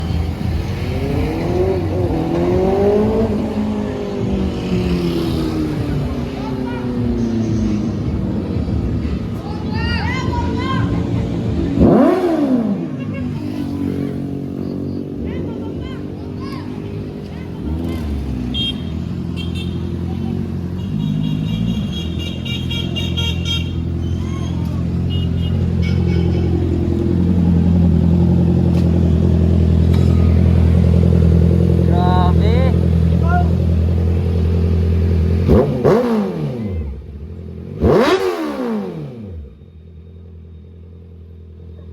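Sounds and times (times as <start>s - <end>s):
motorcycle engine idling: 13.0s - 38.2s, 39.1s - 41.9s.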